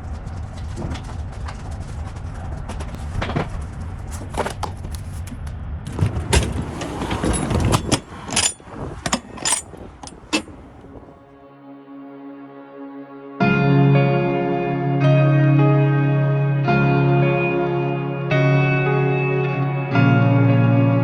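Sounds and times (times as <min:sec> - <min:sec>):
clattering knocks and rattles: 0:00.5 - 0:11.1
soft steady music: 0:11.2 - 0:21.0.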